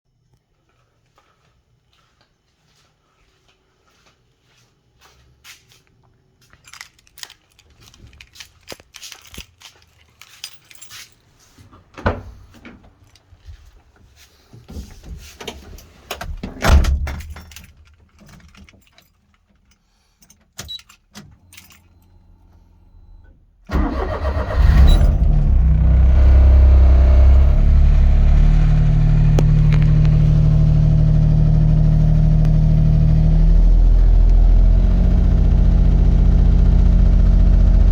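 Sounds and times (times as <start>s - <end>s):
car engine starting and idling: 21.8s - 37.9s.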